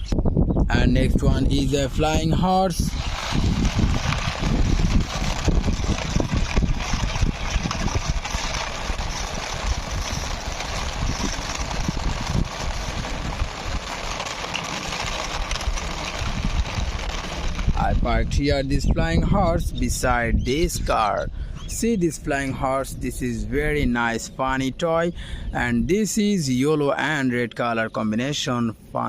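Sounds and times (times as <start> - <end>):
toy wheels scraping on concrete: 1.2 - 20.9.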